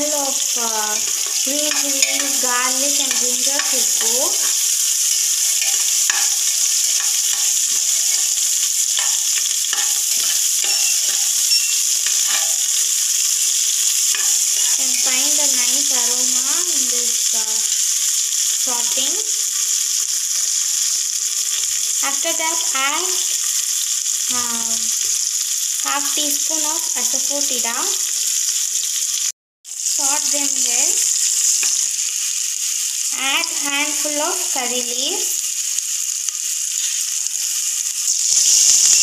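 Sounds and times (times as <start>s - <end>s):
food sizzling in oil: 0.0s - 39.0s
spoon scraping and clinking pot: 0.9s - 15.2s.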